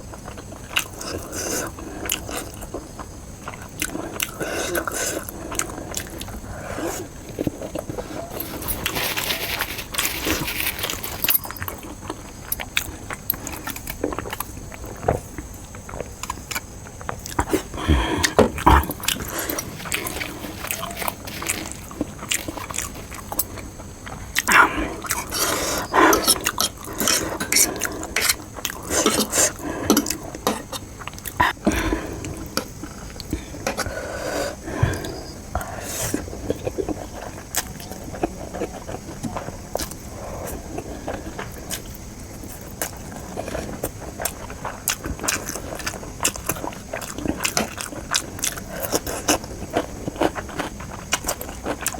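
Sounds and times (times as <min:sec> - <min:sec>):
chewing and biting: 0:00.1 - 0:33.9, 0:34.9 - 0:51.9.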